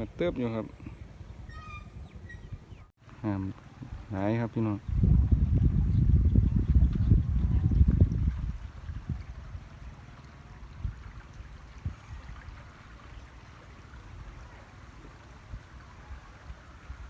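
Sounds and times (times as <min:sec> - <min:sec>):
stream water rushing: 0:07.8 - 0:17.0.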